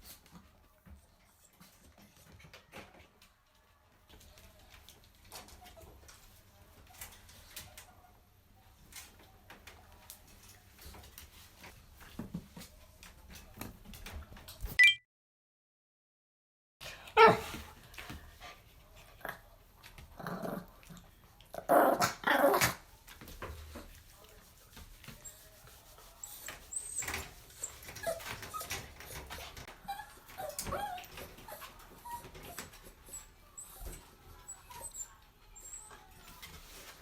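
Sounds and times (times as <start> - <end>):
dog growling and whimpering: 21.6 - 22.8.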